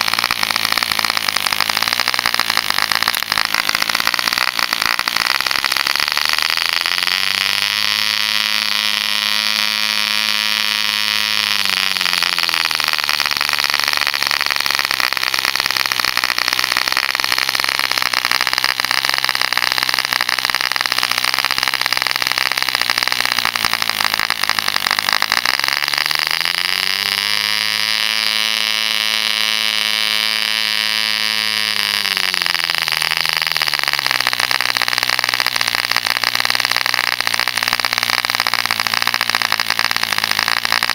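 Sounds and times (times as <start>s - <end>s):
model diesel engine buzzing: 0.0s - 40.9s.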